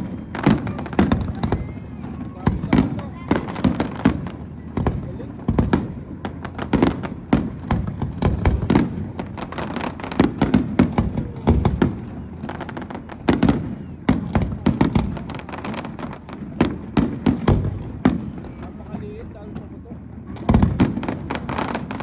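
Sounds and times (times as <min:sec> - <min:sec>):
deep fireworks booms: 0:00.0 - 0:22.0
fireworks bangs and cracks: 0:00.0 - 0:22.0.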